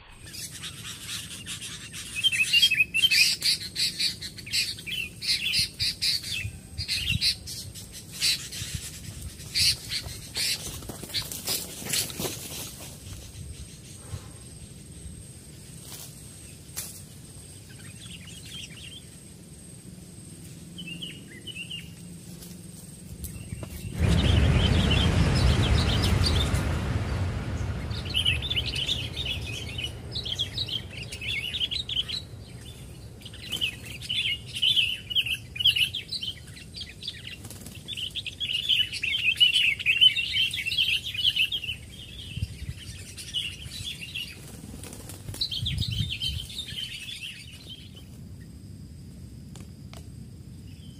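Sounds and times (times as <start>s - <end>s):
bulbul chattering chirps: 27.6s - 44.5s.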